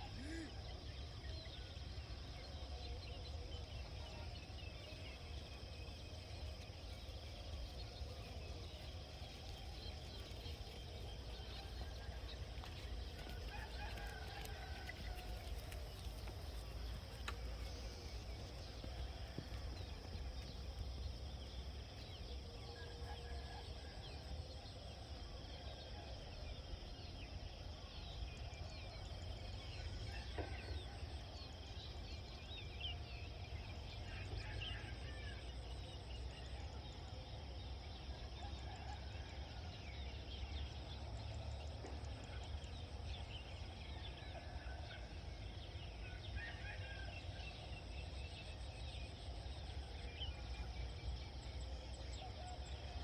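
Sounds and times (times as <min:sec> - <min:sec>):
farmyard fowl calls: 0:11.7 - 0:19.7.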